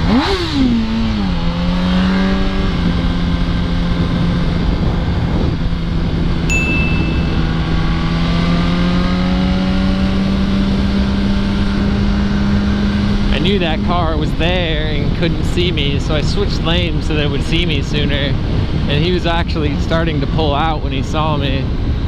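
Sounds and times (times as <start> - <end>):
motorcycle engine revving: 0.0 - 19.0
wind noise: 0.8 - 22.0
short high beep: 6.5 - 7.8.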